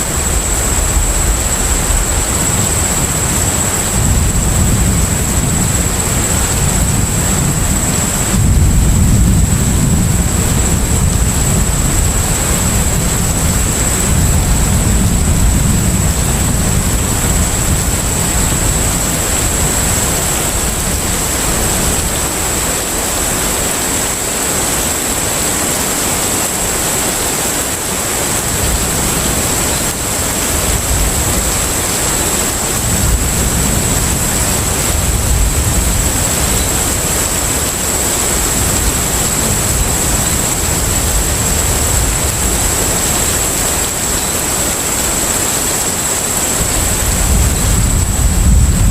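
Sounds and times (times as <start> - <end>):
thin high steady whine: 0.0 - 48.9
wind and water rushing: 0.0 - 48.9.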